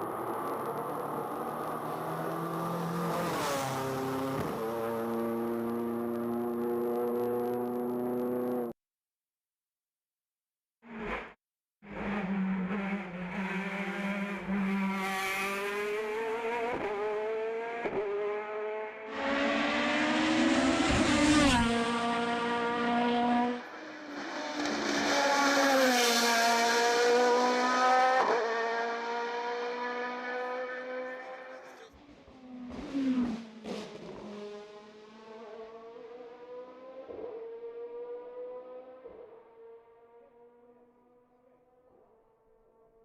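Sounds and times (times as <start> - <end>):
race car engine revving: 11.9 - 39.0.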